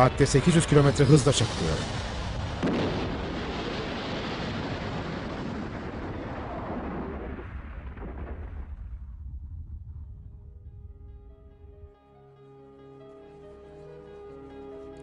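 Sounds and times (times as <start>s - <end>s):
airliner crash explosion rumble: 0.0s - 11.3s.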